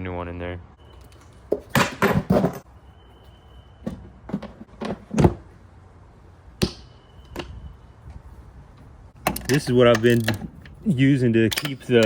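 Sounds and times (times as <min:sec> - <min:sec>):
tools knocking and clunking: 0:08.8 - 0:10.8.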